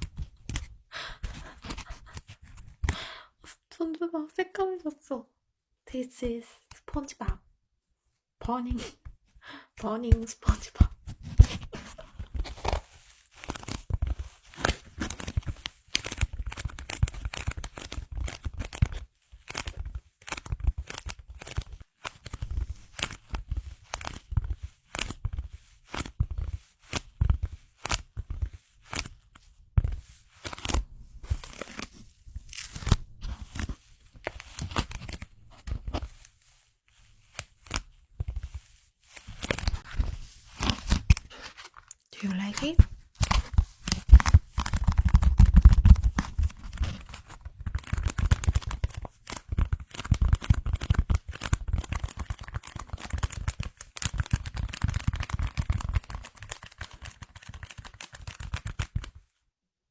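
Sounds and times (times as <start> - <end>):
tearing and crackling: 30.0 - 35.4.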